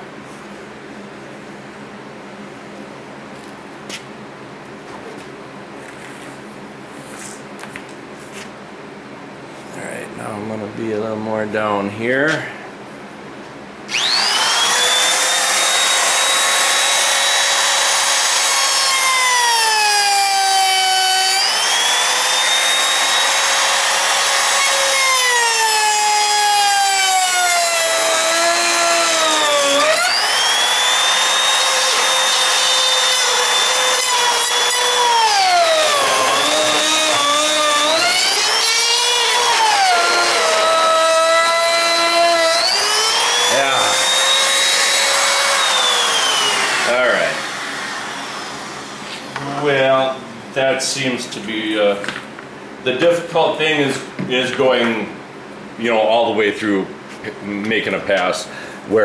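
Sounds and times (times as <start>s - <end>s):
wood router whining: 13.9s - 50.2s.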